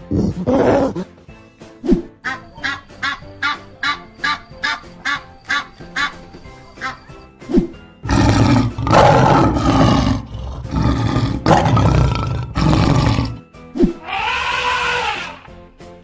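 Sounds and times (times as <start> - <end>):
lion roaring and growling: 8.0 - 13.4
rising and falling animal call: 8.1 - 15.5.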